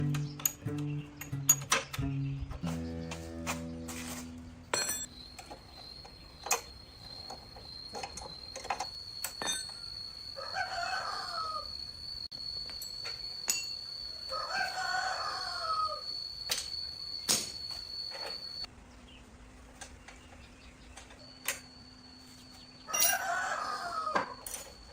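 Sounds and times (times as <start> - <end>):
faint high-pitched tone: 4.8 - 18.8
rooster crowing: 10.3 - 12.2, 14.1 - 16.3, 22.9 - 24.5.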